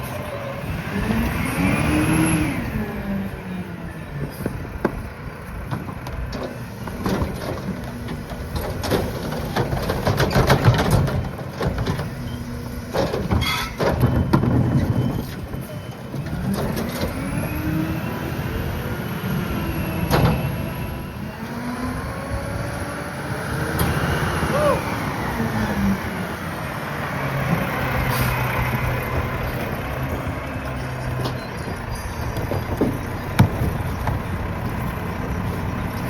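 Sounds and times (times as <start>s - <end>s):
garbage truck diesel engine revving: 0.0s - 5.5s, 14.0s - 36.0s
clanks and thumps of trash: 4.5s - 17.2s, 27.5s - 35.6s.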